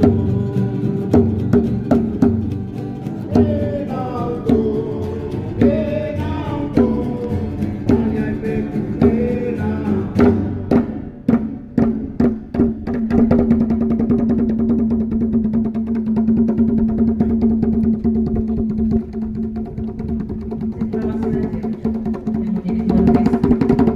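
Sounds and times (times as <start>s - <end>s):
people chanting: 0.0s - 11.4s
percussion beats: 0.0s - 23.9s.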